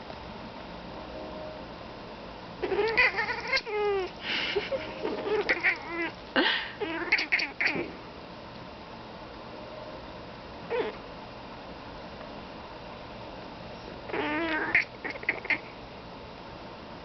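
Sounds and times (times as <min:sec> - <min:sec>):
cat meowing and chattering: 0:02.6 - 0:06.2, 0:06.8 - 0:07.9, 0:10.7 - 0:11.0, 0:14.1 - 0:15.7.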